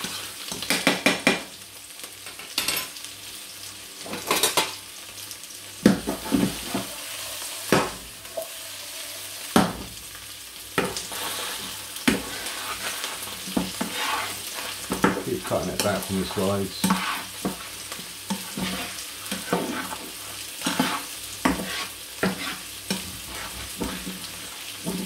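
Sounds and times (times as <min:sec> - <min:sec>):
onion and egg sizzling in pans: 0:00.0 - 0:25.0
fork and spatula scraping pans: 0:10.9 - 0:17.7, 0:18.3 - 0:24.2.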